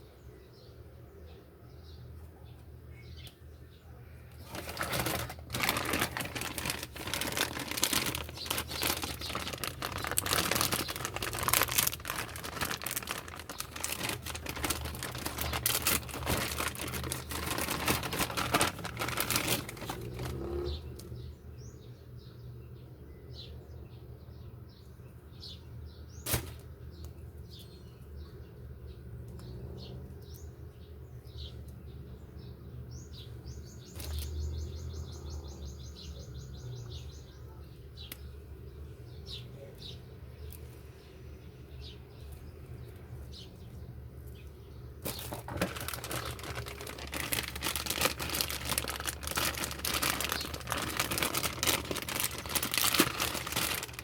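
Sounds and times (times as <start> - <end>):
birds chirping: 0.0 - 54.0
packaging rustling and crinkling: 4.3 - 21.1, 26.2 - 26.7, 45.0 - 54.0.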